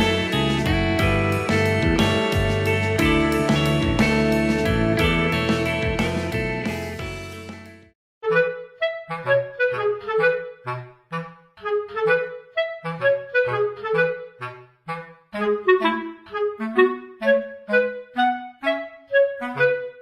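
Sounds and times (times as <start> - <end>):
plucked bass line: 0.0 - 7.9
staccato woodwind tune: 8.2 - 20.0.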